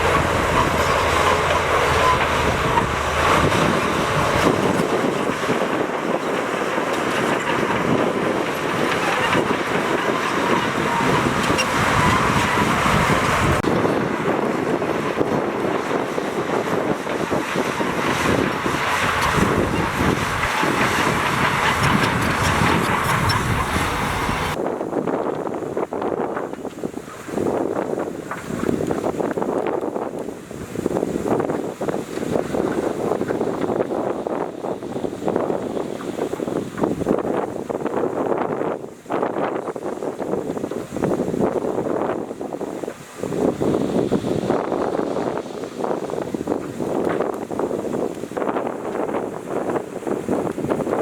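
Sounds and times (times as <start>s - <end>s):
heavy diesel machinery running: 0.0s - 24.6s.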